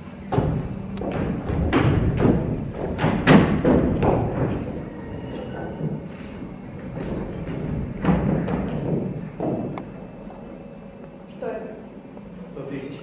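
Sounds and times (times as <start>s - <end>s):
footsteps thumping on wooden stage: 0.2s - 10.6s.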